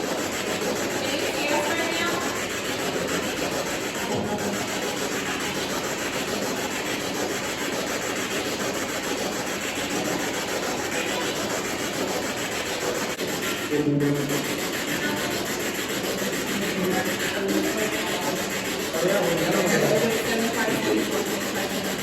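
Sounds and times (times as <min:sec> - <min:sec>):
snatch of broadcast sound: 0:00.0 - 0:22.0.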